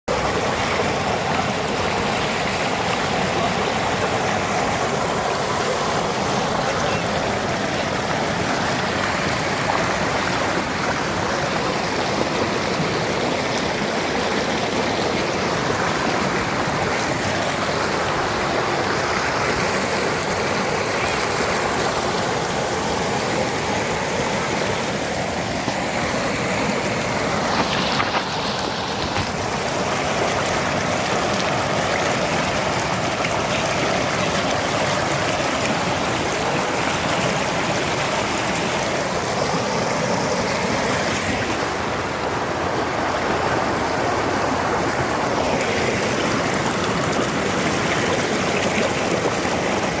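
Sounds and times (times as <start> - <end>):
river water rushing: 0.1 - 50.0.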